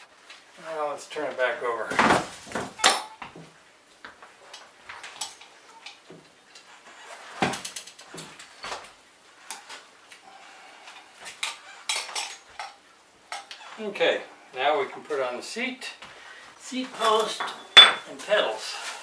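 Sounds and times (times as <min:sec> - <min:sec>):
metal bike parts clinking: 0:02.8 - 0:03.3, 0:05.0 - 0:06.0.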